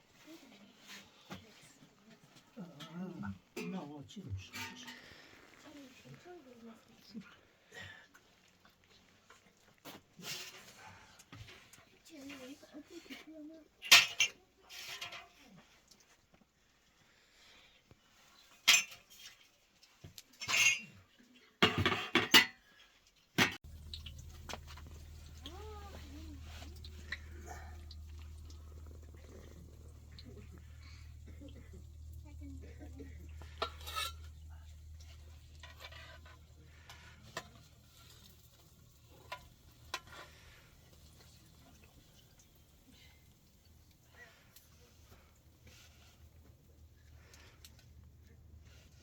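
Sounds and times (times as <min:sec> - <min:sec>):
metal cookware clattering: 0:13.8 - 0:15.3, 0:18.7 - 0:19.2, 0:20.4 - 0:21.0, 0:21.6 - 0:22.6, 0:23.4 - 0:40.4
food sizzling in a pan: 0:23.6 - 0:36.4
low steady hum: 0:23.6 - 0:49.0.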